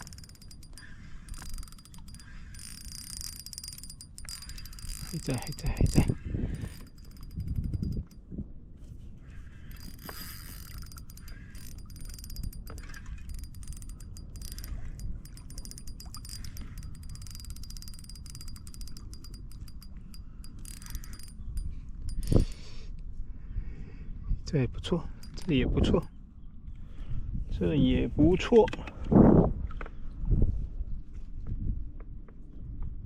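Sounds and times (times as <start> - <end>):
fishing reel clicking: 0.0 - 8.2, 9.5 - 22.8, 25.1 - 26.1
water noise: 0.0 - 8.2, 9.4 - 22.6
wind: 0.0 - 33.0.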